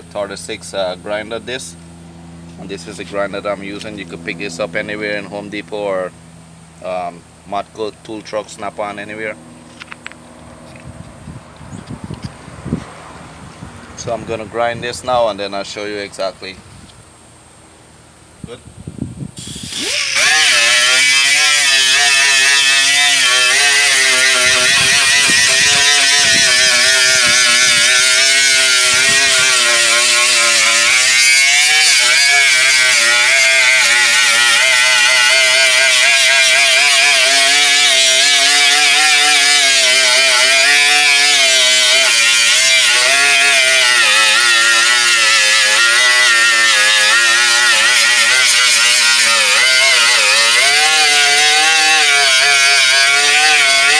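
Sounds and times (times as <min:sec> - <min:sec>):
power grinder grinding metal: 0:19.4 - 0:53.9.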